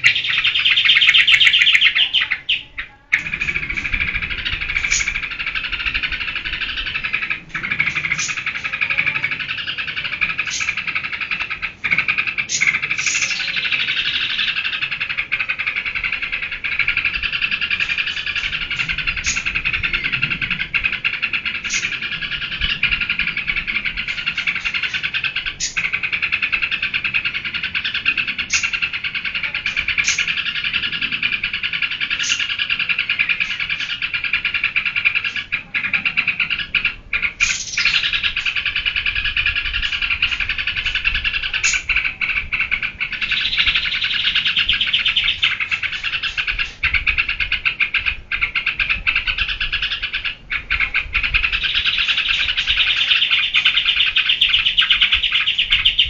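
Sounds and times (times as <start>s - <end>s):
sharp high bird notes: 0.0s - 10.8s
bird singing rapid chatter: 0.0s - 56.0s.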